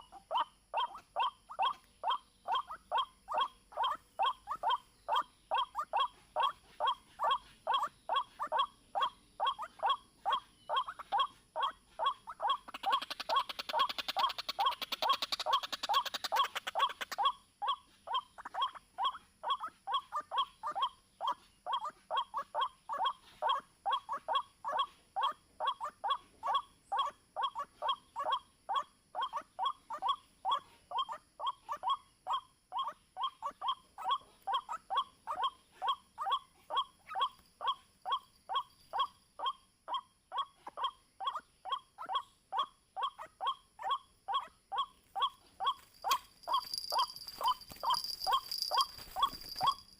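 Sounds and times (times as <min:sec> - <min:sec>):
waterhen calling: 0:43.0 - 0:49.8.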